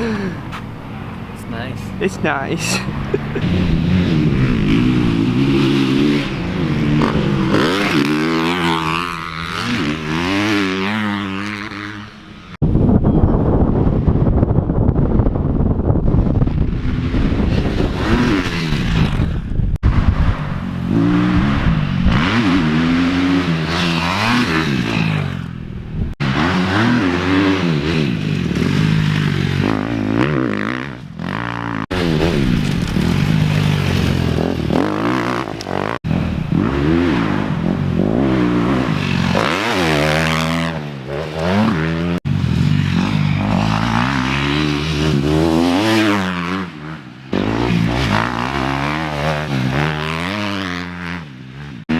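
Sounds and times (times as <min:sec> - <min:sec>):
motorcycle engine revving: 0:00.0 - 0:12.6, 0:14.0 - 0:51.9.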